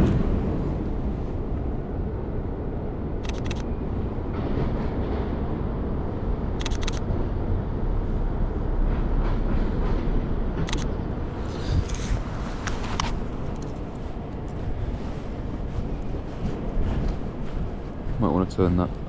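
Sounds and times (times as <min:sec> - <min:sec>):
low outdoor rumble: 0:00.0 - 0:19.0
camera shutter double click: 0:03.2 - 0:03.7, 0:06.6 - 0:07.0.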